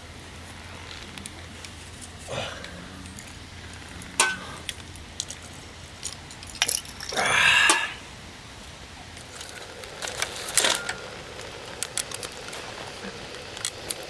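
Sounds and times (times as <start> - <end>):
steady low hum: 0.0 - 14.0
objects clicking and knocking: 0.9 - 8.0.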